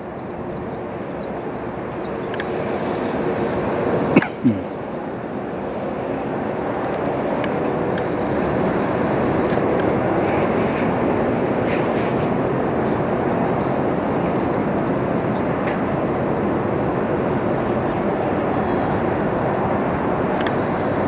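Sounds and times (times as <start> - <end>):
small bird chirping: 0.0 - 2.4, 7.6 - 15.5
jet plane passing overhead: 0.0 - 21.0.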